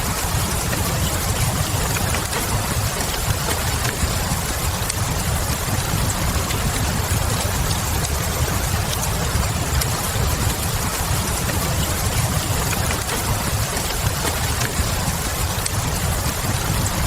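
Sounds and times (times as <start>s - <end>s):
steady rain: 0.0s - 17.0s
wood fire crackling: 0.0s - 17.0s.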